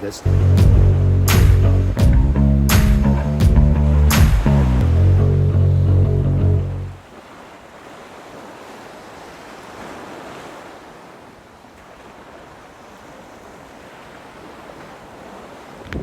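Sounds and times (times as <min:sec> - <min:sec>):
sea water rushing: 0:00.0 - 0:16.0
wind rushing: 0:00.2 - 0:05.6.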